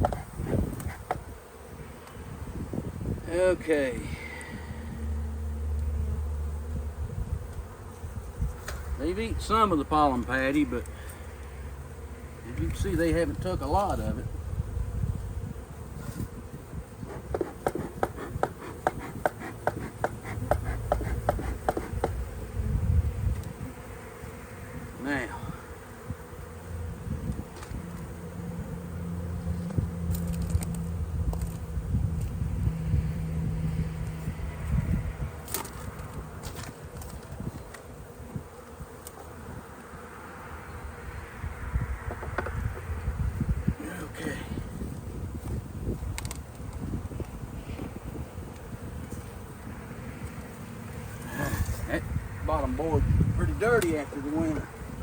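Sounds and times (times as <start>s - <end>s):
bees buzzing: 0.0s - 55.0s
hive tools clicking: 17.1s - 22.2s.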